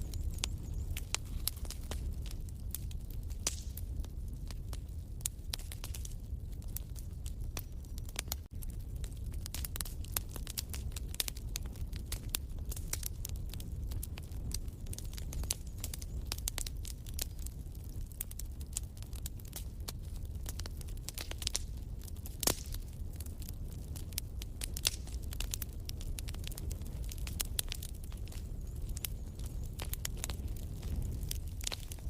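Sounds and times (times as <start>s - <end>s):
wood fire crackling: 0.0s - 32.0s
loud fire pop: 3.4s - 3.8s.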